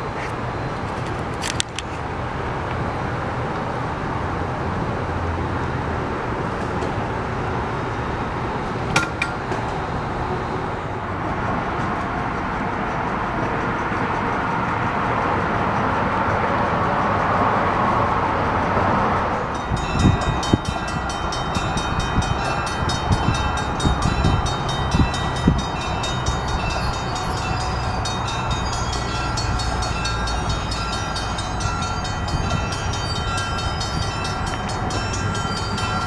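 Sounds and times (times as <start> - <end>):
train approaching: 0.0 - 36.0
sharp metallic clinks: 19.5 - 36.0.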